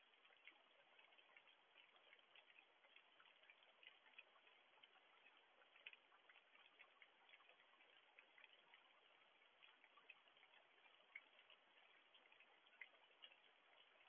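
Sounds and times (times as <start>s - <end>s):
raindrops clicking: 0.0s - 14.0s
soft steady hiss: 0.0s - 14.0s.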